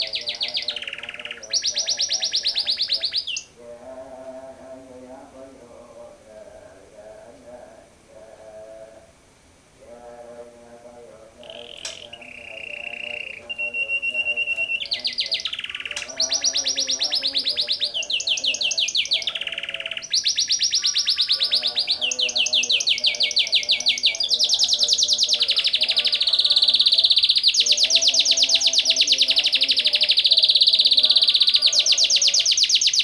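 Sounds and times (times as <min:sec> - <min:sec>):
canary singing trills: 0:00.0 - 0:03.7, 0:11.4 - 0:33.0.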